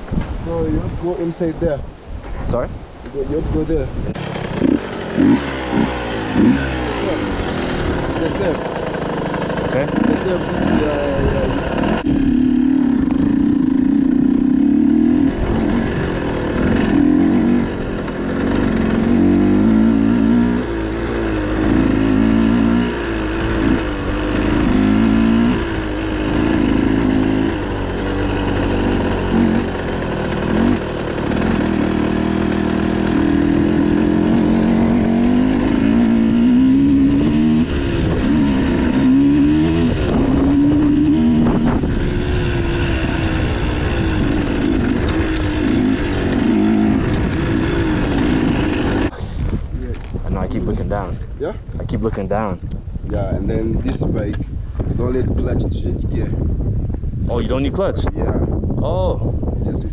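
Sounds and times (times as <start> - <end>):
dirt bike engine revving: 4.0 - 49.2.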